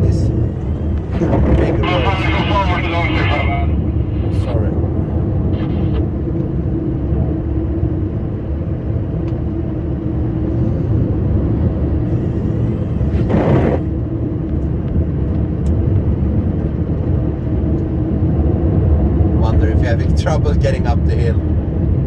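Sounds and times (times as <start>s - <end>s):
rushing noise: 0.0s - 8.1s, 10.3s - 14.1s.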